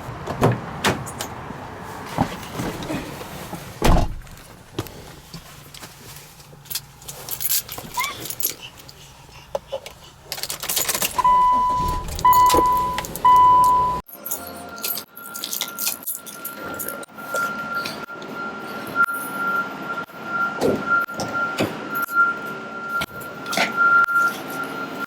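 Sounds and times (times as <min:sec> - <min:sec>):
clicking and rattling handling: 0:06.6 - 0:11.3
electronic beeps: 0:11.2 - 0:14.0.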